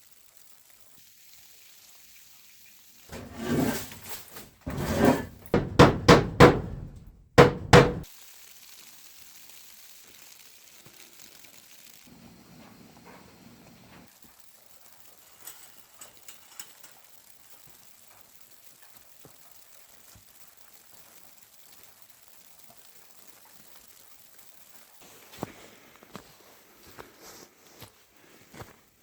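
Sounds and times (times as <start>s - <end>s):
heavy dull thuds: 4.7s - 8.0s
faint steady hiss: 8.1s - 29.0s.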